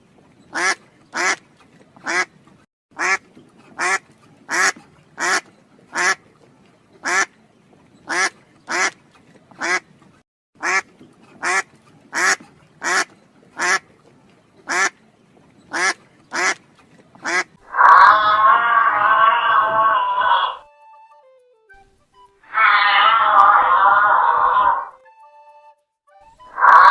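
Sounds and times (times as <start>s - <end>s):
duck quacking: 0.5s - 1.4s, 2.0s - 2.3s, 3.0s - 6.2s, 7.0s - 7.3s, 8.1s - 9.0s, 9.6s - 9.8s, 10.6s - 13.9s, 14.7s - 15.0s, 15.7s - 16.6s, 17.2s - 18.2s, 26.6s - 26.9s.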